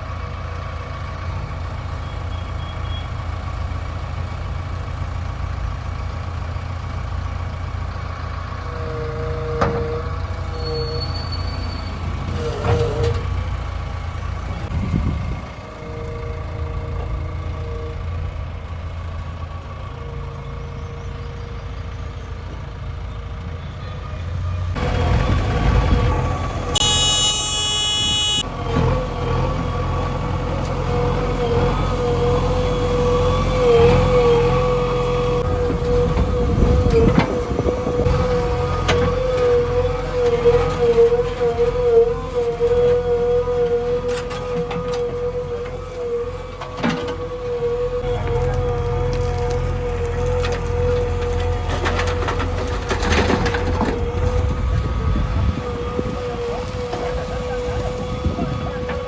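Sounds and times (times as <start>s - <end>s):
heavy diesel machinery running: 0.0s - 59.0s
short whines: 26.7s - 28.4s
high-pitched tone: 26.8s - 28.4s.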